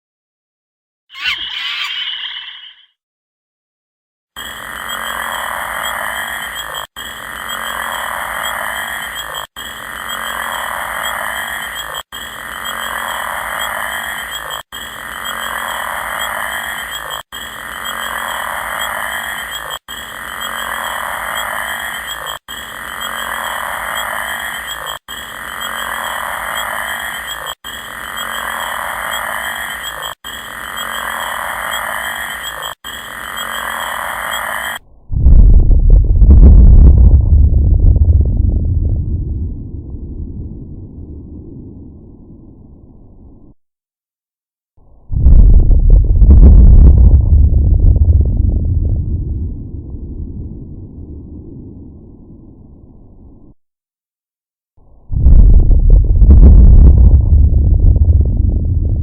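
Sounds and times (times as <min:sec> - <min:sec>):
animal chorus: 0:01.1 - 0:02.9, 0:04.5 - 0:34.8.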